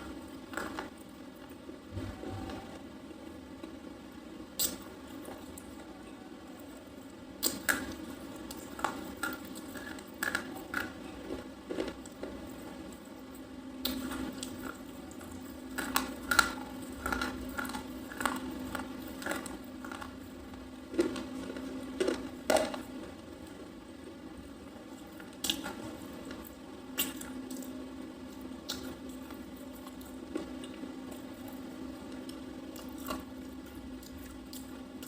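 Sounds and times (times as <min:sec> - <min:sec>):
chewing crunches: 0:00.0 - 0:01.6, 0:07.4 - 0:23.1, 0:24.9 - 0:34.8.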